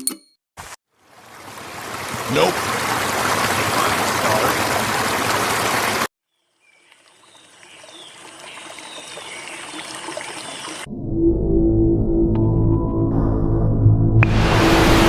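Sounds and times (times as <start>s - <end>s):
quiet watery noise: 0.9s - 10.9s
running water rushing: 0.9s - 10.9s.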